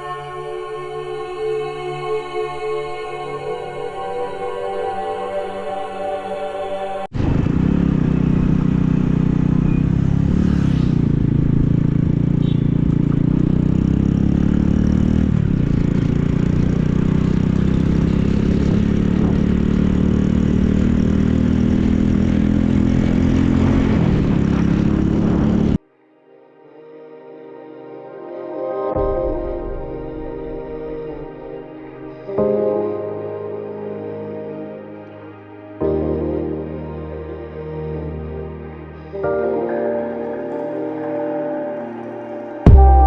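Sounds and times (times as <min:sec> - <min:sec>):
motorcycle engine running: 0:07.1 - 0:25.8, 0:42.7 - 0:43.0
road and wind noise: 0:07.1 - 0:25.8.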